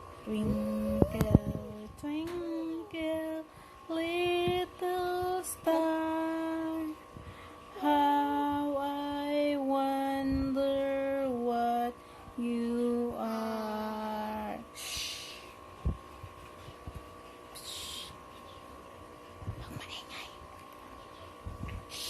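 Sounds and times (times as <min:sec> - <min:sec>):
woman singing long notes: 0:00.2 - 0:07.0, 0:07.7 - 0:15.4.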